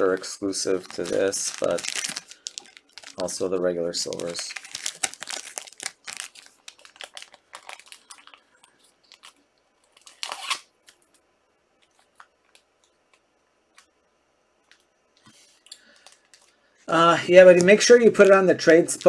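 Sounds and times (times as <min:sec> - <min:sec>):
cards and wrappers rustling: 0:00.0 - 0:11.2, 0:15.3 - 0:19.0.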